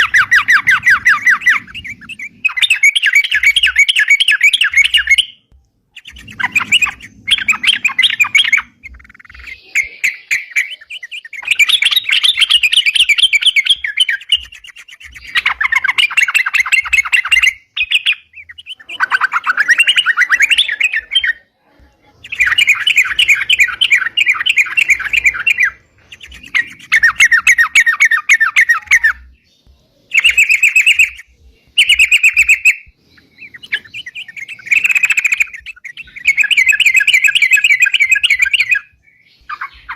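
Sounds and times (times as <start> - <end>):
bulbul singing fast chattering song: 0.0 - 39.9.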